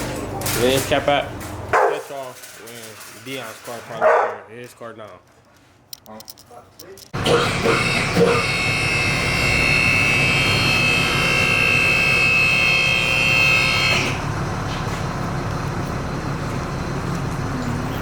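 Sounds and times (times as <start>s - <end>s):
engine rumble: 14.0s - 18.0s.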